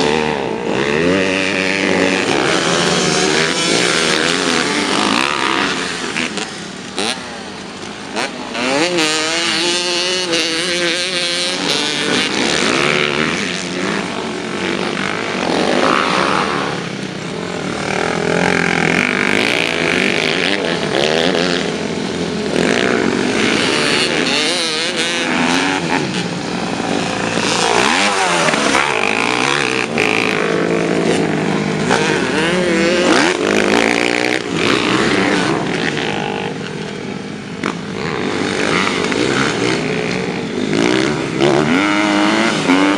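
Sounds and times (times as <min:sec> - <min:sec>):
motocross bike engines revving: 0:00.0 - 0:42.9.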